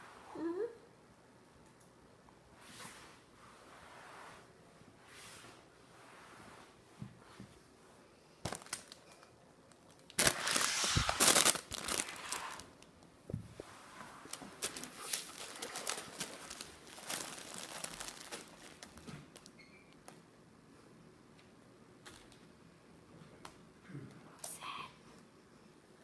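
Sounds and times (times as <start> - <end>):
play tunnel rustling and crinkling: 8.4 - 19.6.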